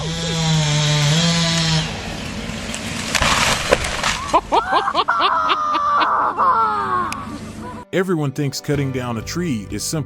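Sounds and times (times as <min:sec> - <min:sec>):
chainsaw running: 0:00.0 - 0:04.4
wood splintering and breaking: 0:00.0 - 0:04.6
tree crashing down: 0:00.6 - 0:04.9
people shouting: 0:05.6 - 0:07.8.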